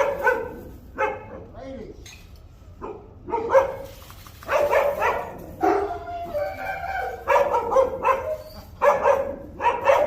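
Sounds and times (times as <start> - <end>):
dogs barking: 0.0 - 1.6, 2.8 - 10.0.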